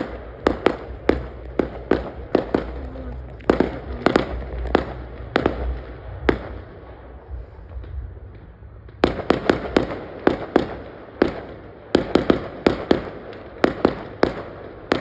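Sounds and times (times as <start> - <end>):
low rumble: 0.0 - 11.2
fireworks bangs: 0.0 - 15.0.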